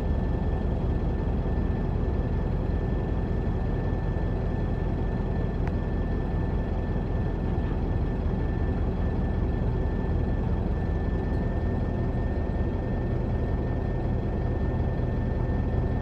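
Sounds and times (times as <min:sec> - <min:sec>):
faint steady whine: 0:00.0 - 0:16.0.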